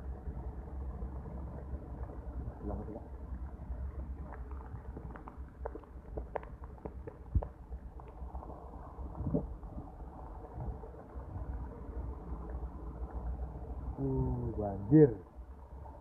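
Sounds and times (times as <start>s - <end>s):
heavy rain low rumble: 0.0s - 16.0s
raindrops tapping on phone: 3.2s - 13.3s.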